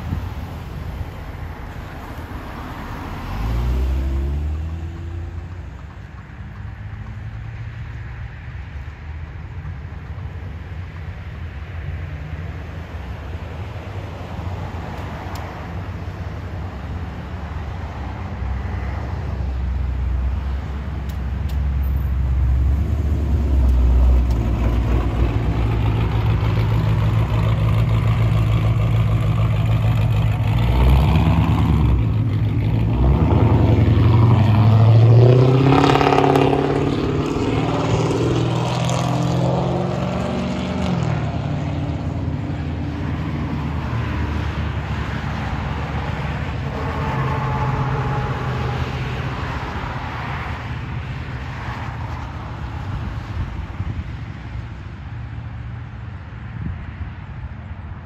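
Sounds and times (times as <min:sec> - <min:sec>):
vehicle engine running: 0:22.5 - 0:34.1.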